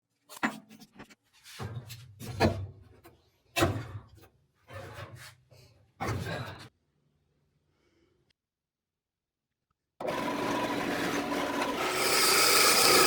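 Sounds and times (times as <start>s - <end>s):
power tool on wood: 10.0s - 13.0s.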